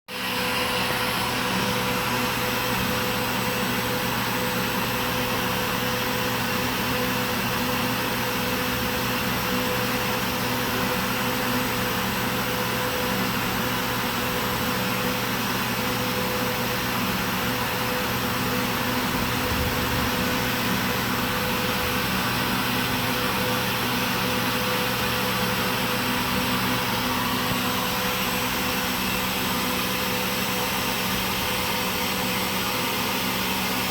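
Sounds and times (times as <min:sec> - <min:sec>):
air compressor running: 0:00.1 - 0:33.9.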